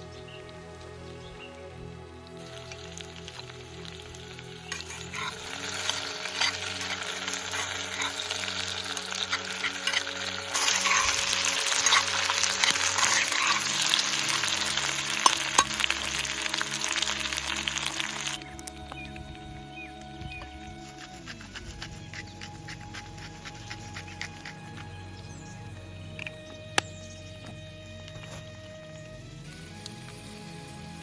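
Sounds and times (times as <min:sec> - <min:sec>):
food sizzling in a pan: 0:02.4 - 0:18.4.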